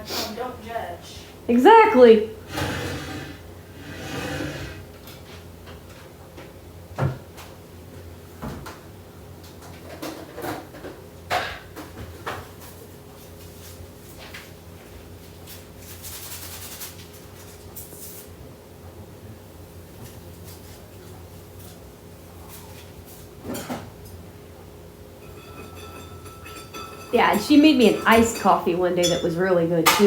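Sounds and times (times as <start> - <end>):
kitchen items knocking and clicking: 25.3 - 30.0.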